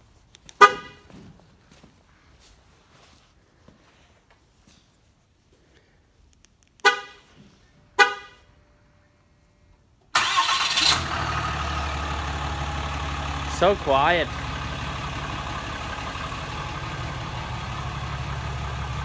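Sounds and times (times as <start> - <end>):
horn toots: 7.9 - 8.5
diesel engine starting and idling: 10.1 - 19.0.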